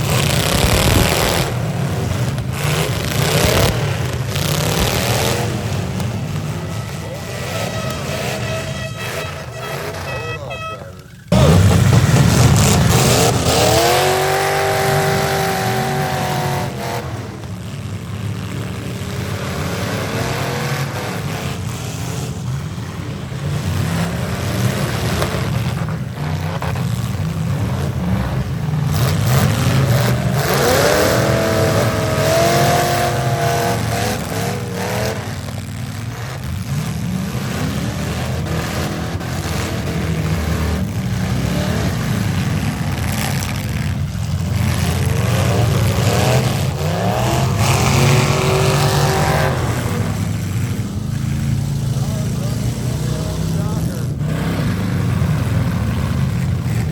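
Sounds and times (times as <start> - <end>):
cars colliding: 0.0 - 52.2
car engines revving hard: 0.0 - 56.9.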